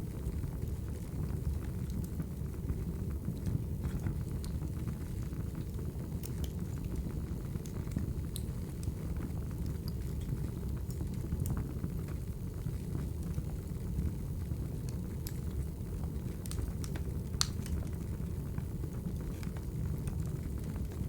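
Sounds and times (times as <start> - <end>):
fire rumbling: 0.0 - 21.0
wood fire popping and crackling: 0.0 - 21.0.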